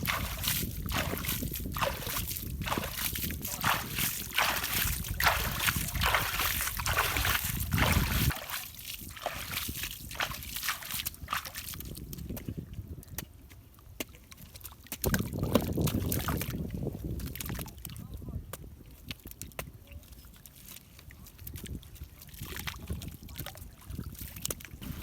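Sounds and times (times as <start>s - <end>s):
river water splashing: 0.0s - 11.8s.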